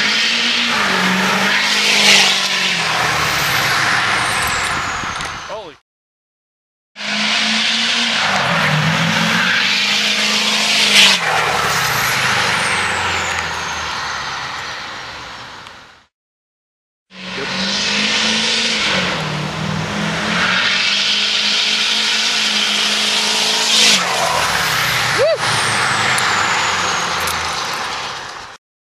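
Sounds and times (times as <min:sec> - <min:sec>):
turbo and exhaust rush: 0:00.0 - 0:05.8, 0:07.0 - 0:16.1, 0:17.1 - 0:28.6
diesel engine running hard: 0:17.2 - 0:28.2
high falling whistle: 0:23.9 - 0:27.6.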